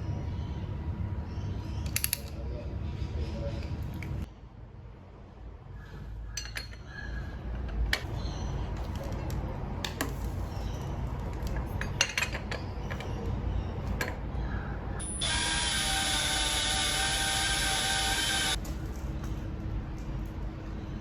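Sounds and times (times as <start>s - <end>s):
steady mechanical whir: 15.0s - 18.6s.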